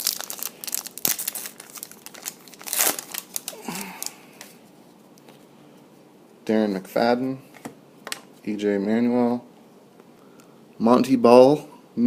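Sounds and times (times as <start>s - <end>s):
wrapper tearing and crinkling: 0.0s - 4.2s.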